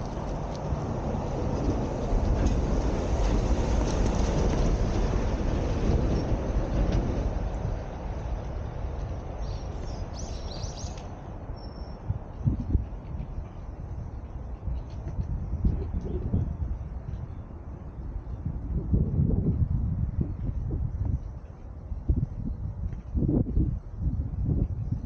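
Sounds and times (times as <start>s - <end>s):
wheels clicking over rail joints: 0.0s - 17.2s
train passing rumble: 0.0s - 25.0s.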